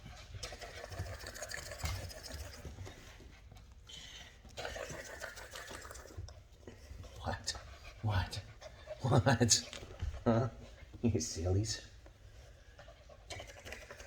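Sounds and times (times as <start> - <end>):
puppies scuffling: 5.8 - 12.8.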